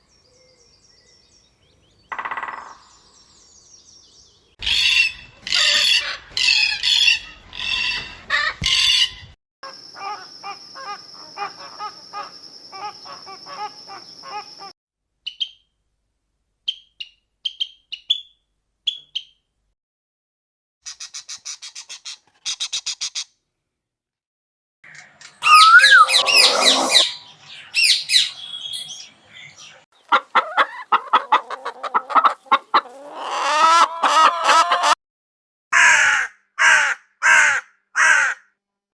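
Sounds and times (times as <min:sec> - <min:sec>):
bird chirps: 0:00.0 - 0:04.6, 0:09.6 - 0:15.8, 0:16.6 - 0:19.5, 0:24.9 - 0:31.2
varied bird calls: 0:00.0 - 0:14.7, 0:20.9 - 0:23.3, 0:24.9 - 0:35.0
bird trill: 0:00.2 - 0:05.3, 0:15.3 - 0:15.8, 0:16.7 - 0:19.5, 0:25.4 - 0:30.6
rapid ticking bird call: 0:02.1 - 0:02.9
loud repeated bird calls: 0:02.1 - 0:14.7, 0:16.7 - 0:19.5, 0:20.9 - 0:23.3, 0:24.9 - 0:35.0
high steady whistle: 0:25.4 - 0:27.0.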